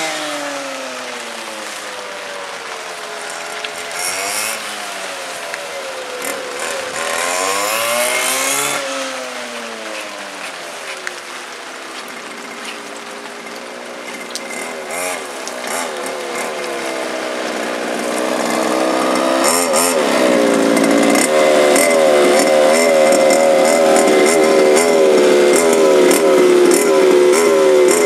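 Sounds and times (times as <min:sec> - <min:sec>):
small two-stroke engines buzzing: 0:00.0 - 0:28.0.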